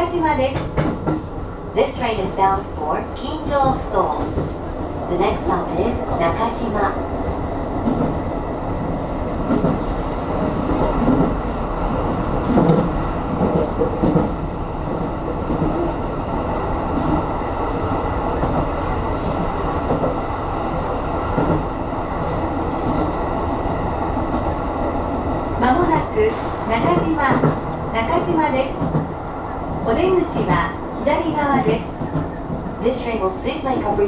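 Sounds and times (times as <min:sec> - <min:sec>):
train wheels rumbling on rail: 0:00.0 - 0:34.0
track clunks: 0:00.4 - 0:04.6, 0:09.4 - 0:17.7, 0:24.0 - 0:34.0.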